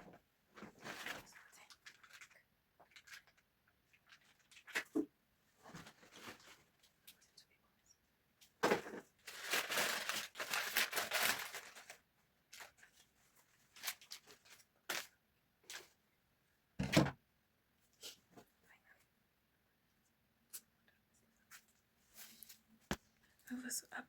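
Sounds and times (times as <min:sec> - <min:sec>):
plastic packaging crinkling: 0:09.2 - 0:13.0, 0:13.7 - 0:15.1.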